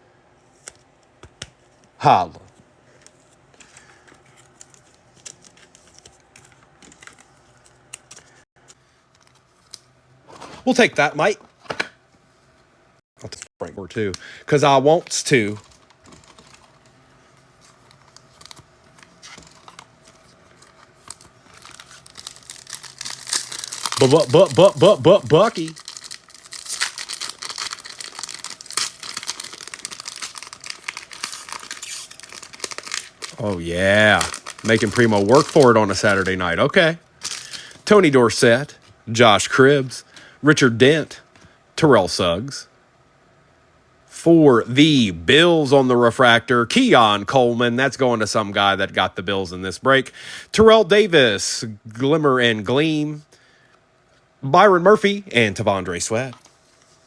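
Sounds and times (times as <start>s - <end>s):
cards and wrappers rustling: 2.9s - 11.9s, 14.9s - 38.9s
foil wrapper tearing and crinkling: 20.6s - 36.4s.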